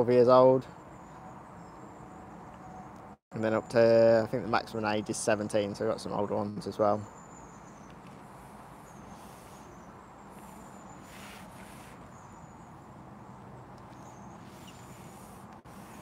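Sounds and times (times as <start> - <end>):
high thin bird calls: 7.1 - 16.0.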